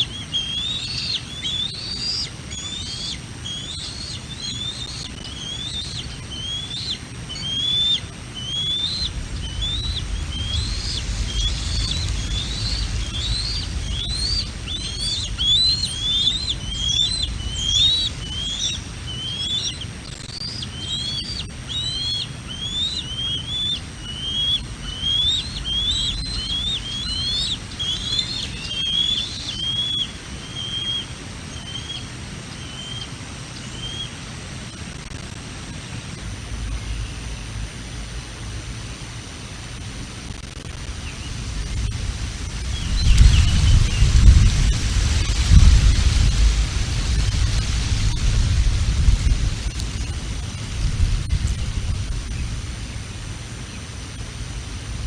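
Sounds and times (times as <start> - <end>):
eagle whistled chirps: 0.0 - 32.0
wind rumbling on microphone: 7.1 - 20.4, 34.8 - 53.5.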